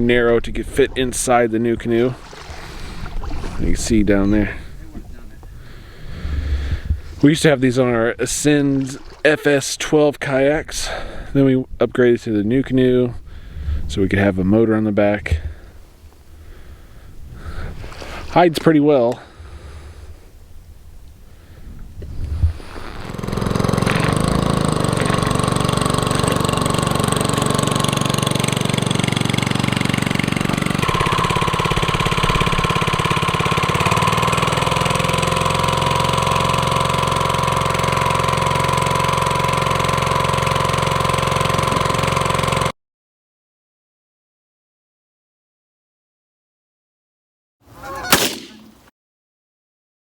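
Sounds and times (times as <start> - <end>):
small single-cylinder engine running: 22.8 - 42.7.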